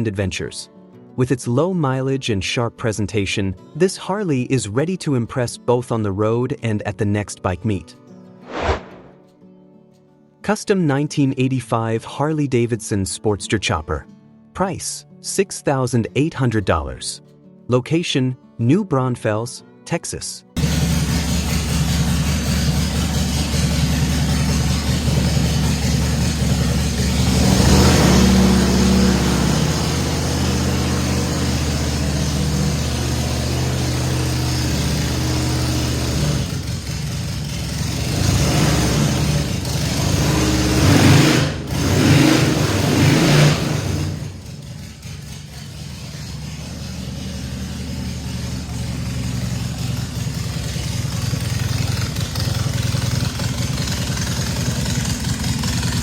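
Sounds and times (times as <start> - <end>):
motorcycle engine revving: 20.6 - 56.0.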